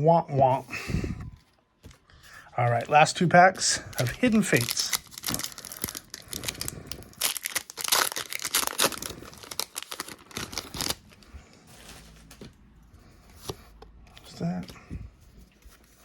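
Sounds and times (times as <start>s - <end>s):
foil wrapper tearing and crinkling: 4.0s - 11.2s.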